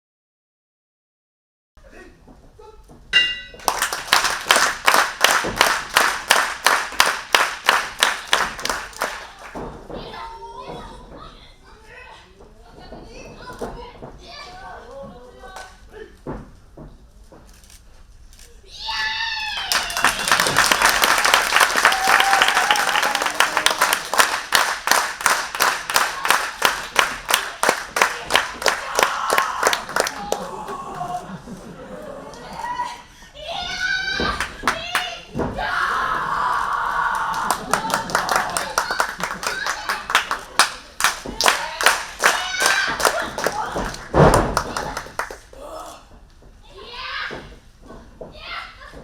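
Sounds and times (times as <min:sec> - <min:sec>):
audience clapping in unison: 0:03.6 - 0:09.6, 0:19.5 - 0:31.0, 0:34.3 - 0:35.2, 0:37.1 - 0:45.6.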